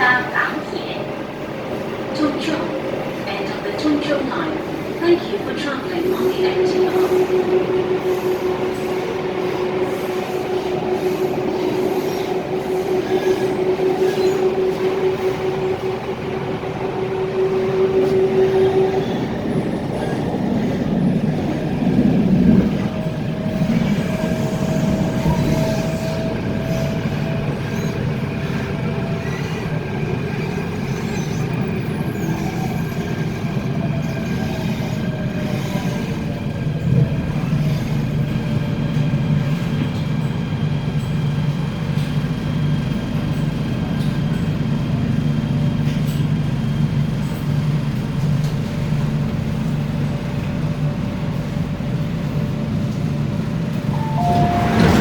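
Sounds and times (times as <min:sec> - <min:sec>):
electric train rumbling: 0:00.0 - 0:55.0
train whining tones: 0:02.1 - 0:38.6, 0:53.4 - 0:55.0.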